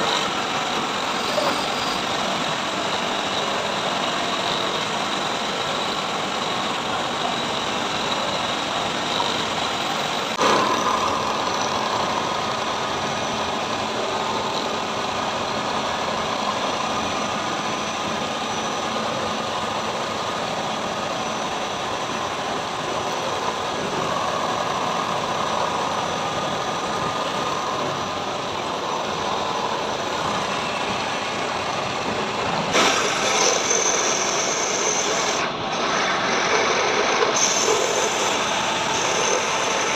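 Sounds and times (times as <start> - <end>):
machine tool machining metal: 0.0 - 39.9.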